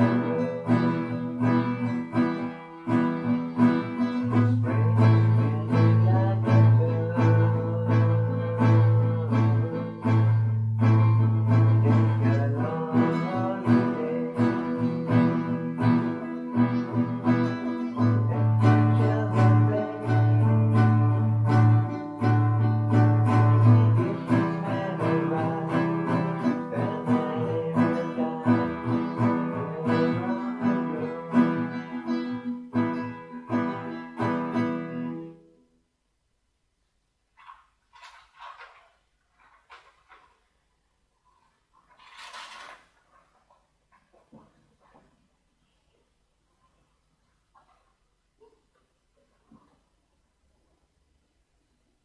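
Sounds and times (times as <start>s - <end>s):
acoustic guitar plucked notes: 0.0s - 35.6s.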